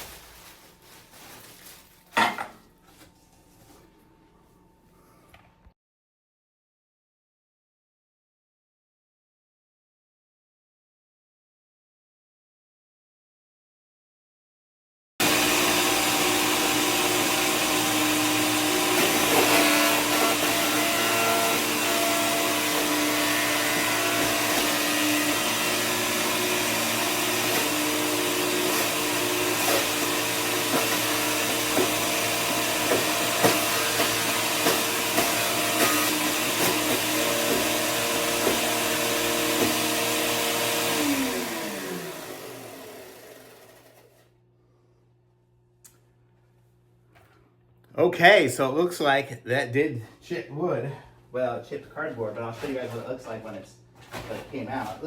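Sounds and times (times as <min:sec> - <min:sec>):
chipper shredder shredding cardboard: 0:15.2 - 0:44.3.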